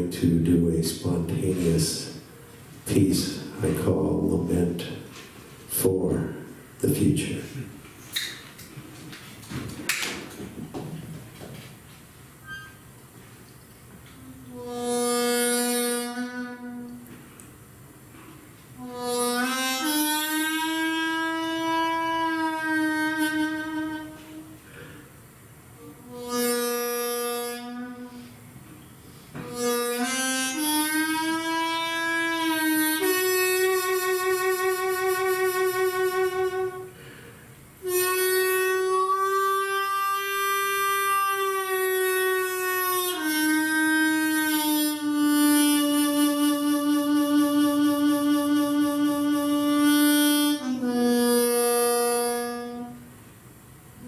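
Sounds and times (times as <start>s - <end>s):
wind instrument playing long notes: 14.1s - 17.2s, 18.7s - 25.0s, 25.7s - 53.2s
slow solo lament: 18.8s - 25.0s, 37.8s - 53.0s.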